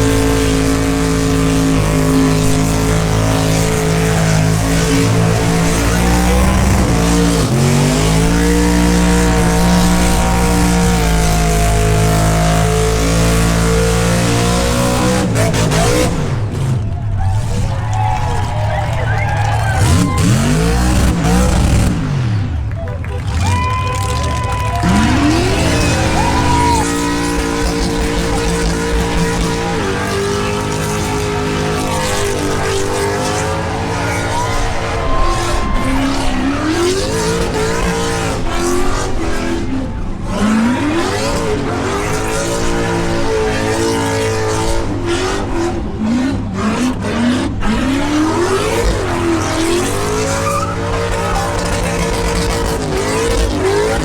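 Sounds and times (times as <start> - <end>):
car engine revving: 0.0 - 54.0
tires squealing: 0.0 - 54.0.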